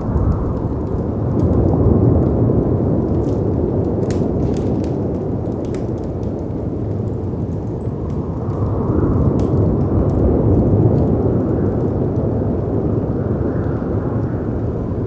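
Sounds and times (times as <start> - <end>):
heavy wind: 0.0 - 15.0
fireplace crackling pops: 3.0 - 8.7.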